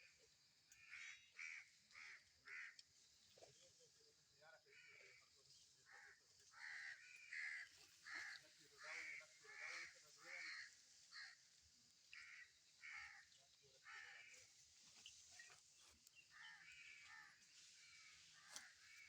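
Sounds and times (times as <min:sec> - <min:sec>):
crows cawing: 0:00.8 - 0:02.8, 0:05.8 - 0:11.4, 0:12.1 - 0:14.5, 0:16.3 - 0:19.0.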